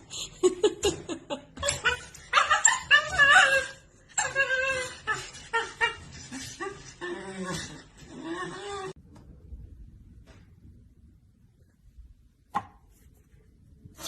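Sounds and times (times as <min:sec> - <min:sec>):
person laughing: 0:00.0 - 0:03.2.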